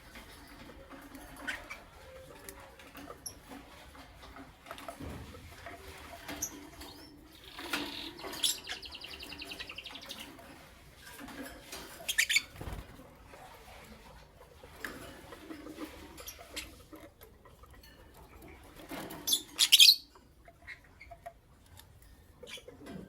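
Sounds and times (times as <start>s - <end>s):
lovebirds chirping: 6.2s - 10.4s, 12.0s - 12.8s, 19.3s - 20.1s
fast bird trill: 7.4s - 10.2s.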